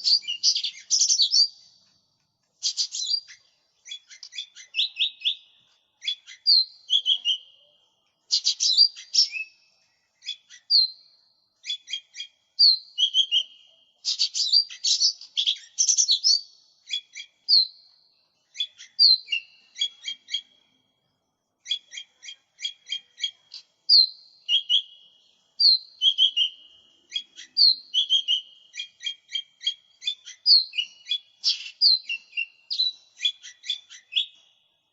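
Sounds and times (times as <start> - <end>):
small bird singing: 0.0 - 34.9.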